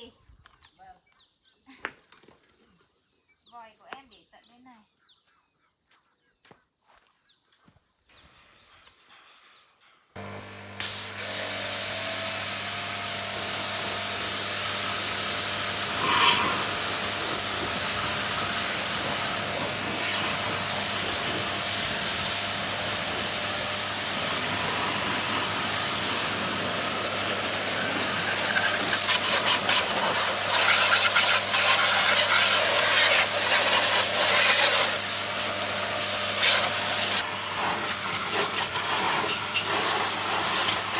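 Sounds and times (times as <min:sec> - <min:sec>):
pressure washer motor humming: 0:10.2 - 0:40.9
water jet spraying: 0:10.2 - 0:40.9.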